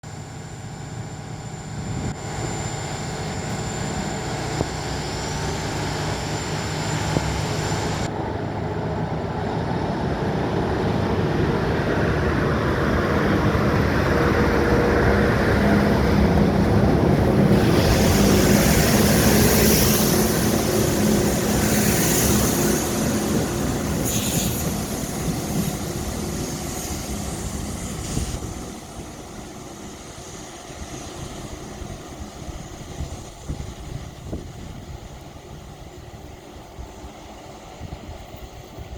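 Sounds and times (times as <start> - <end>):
train rail rumble: 0.0 - 38.9
train whine: 0.0 - 38.9.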